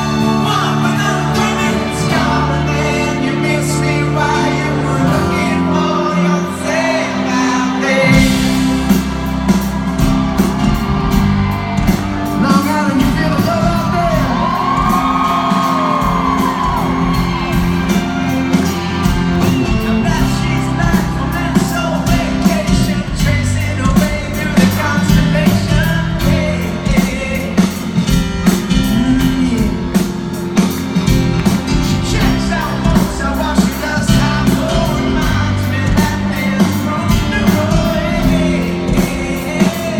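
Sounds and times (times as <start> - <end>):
pop music with singing: 0.0 - 39.9
steady drum beat: 8.0 - 39.9
shouts or whoops: 14.1 - 18.1.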